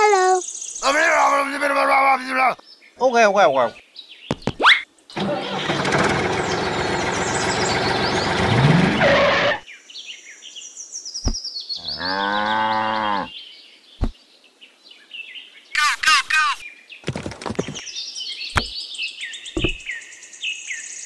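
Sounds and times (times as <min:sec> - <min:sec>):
tractor engine running: 0:05.2 - 0:09.6
cow mooing: 0:11.8 - 0:13.3.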